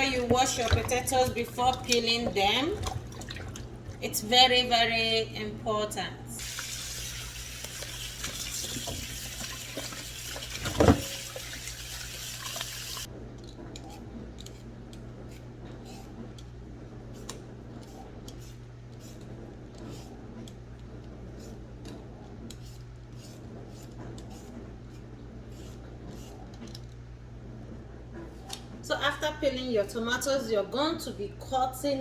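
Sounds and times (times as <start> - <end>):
tap water running into sink: 6.4 - 13.1.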